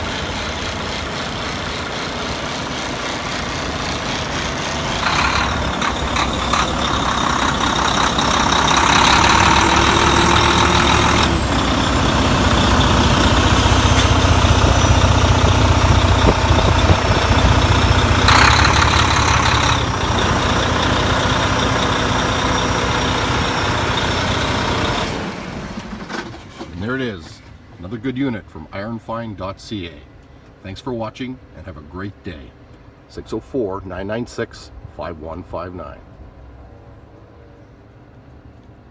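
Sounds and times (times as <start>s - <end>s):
diesel truck engine droning: 0.0s - 38.9s
hiss: 13.5s - 14.2s.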